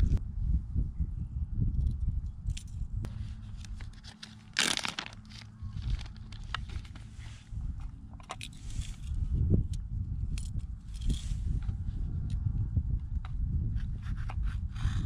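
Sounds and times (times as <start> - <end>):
wind rumble on microphone: 0.0 - 15.0
plastic bag crinkling: 4.0 - 6.9.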